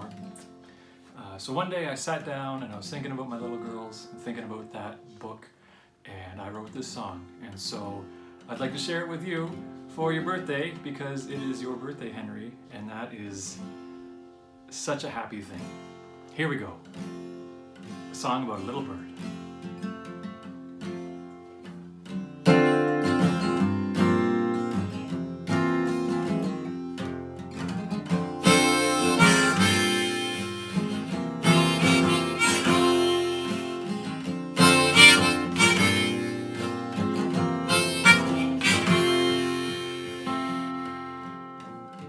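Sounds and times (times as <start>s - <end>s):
acoustic guitar strumming: 0.0s - 42.0s
harmonica melody: 28.0s - 42.0s.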